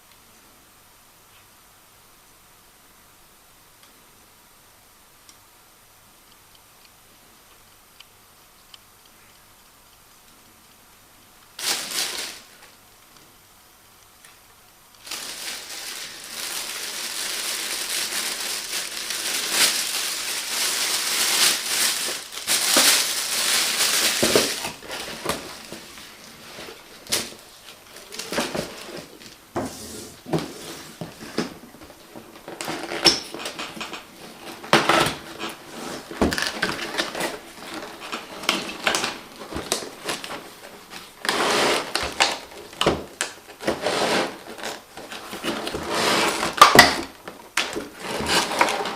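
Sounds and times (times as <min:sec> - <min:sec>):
packaging crinkling: 0:11.6 - 0:12.8, 0:15.0 - 0:29.4, 0:31.8 - 0:48.9.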